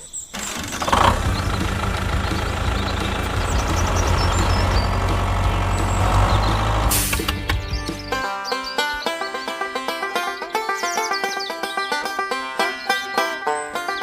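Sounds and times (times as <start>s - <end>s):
engine idling: 0.3s - 8.2s.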